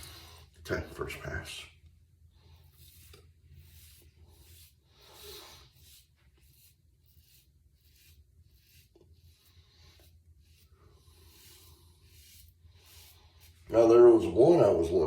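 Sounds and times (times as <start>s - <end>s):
razor scraping stubble: 2.6s - 14.9s.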